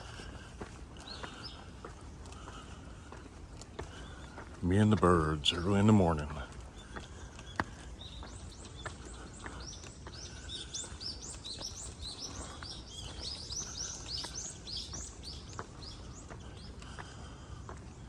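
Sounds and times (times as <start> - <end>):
songbirds chirping: 0.0 - 18.0.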